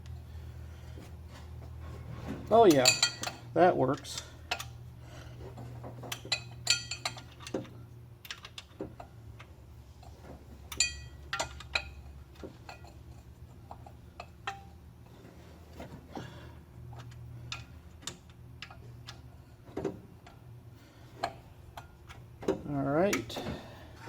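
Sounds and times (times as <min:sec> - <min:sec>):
low steady hum: 0:00.0 - 0:24.0
metal hand tools clinking: 0:02.6 - 0:03.4, 0:10.7 - 0:12.0.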